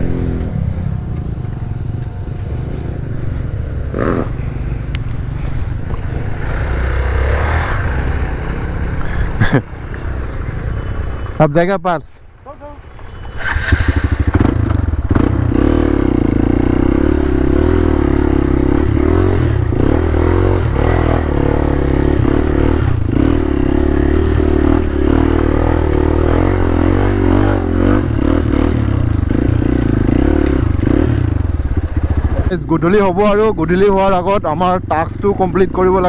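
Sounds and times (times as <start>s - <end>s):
motorcycle engine revving hard: 3.8s - 4.6s, 5.4s - 9.6s, 12.8s - 34.0s.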